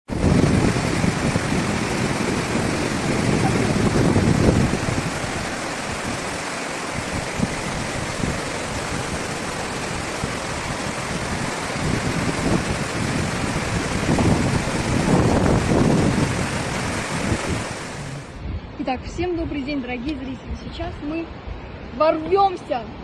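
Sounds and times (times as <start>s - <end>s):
water rushing: 0.0s - 18.4s
wind buffeting microphone: 0.1s - 23.0s.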